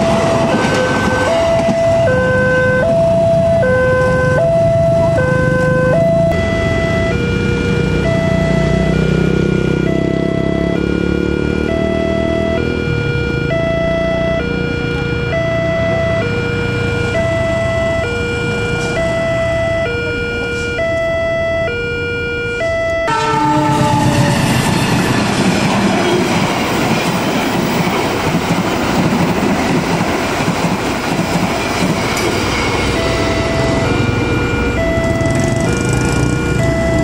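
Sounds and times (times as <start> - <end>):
passing train rumble: 0.0 - 37.0
two-tone crossing alarm: 0.0 - 37.0
train horn blast: 21.9 - 25.2, 32.8 - 36.7.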